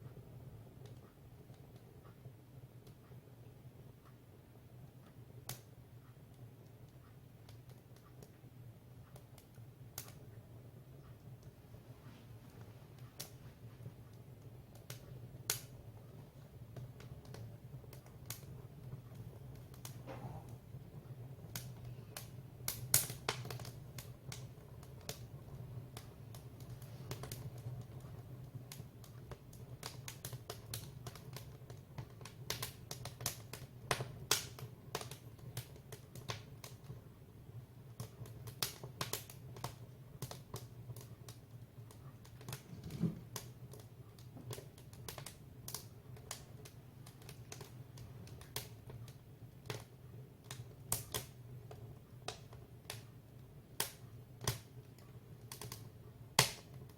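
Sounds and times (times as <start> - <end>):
steady low hum: 0.0 - 29.1
firewood crackling and popping: 0.2 - 56.9.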